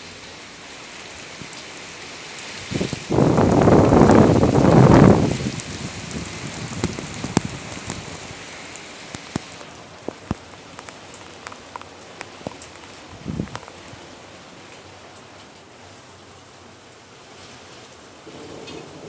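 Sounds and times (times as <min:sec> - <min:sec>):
heavy rain hiss: 0:00.0 - 0:19.0
raindrops clicking close by: 0:00.9 - 0:15.7, 0:17.9 - 0:19.0.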